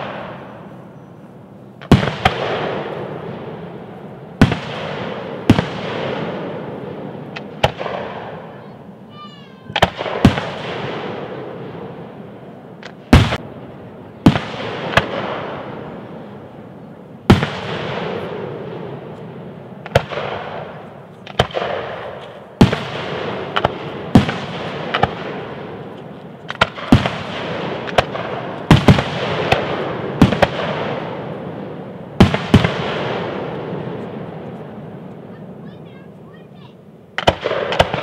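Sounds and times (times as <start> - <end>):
firework shells bursting: 1.7 - 9.0, 17.2 - 35.7, 36.8 - 38.0.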